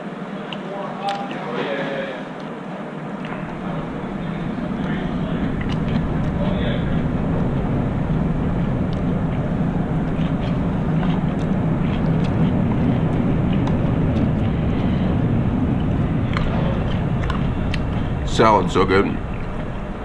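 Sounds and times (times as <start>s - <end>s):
low rumbling background noise: 0.0s - 20.0s
wet chewing clicks: 10.0s - 15.1s, 15.8s - 18.1s.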